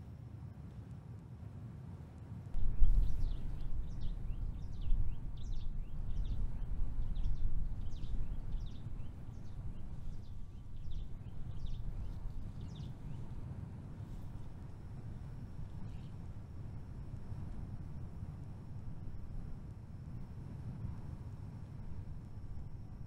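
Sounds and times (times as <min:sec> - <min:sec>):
low rumble: 0:02.6 - 0:05.5.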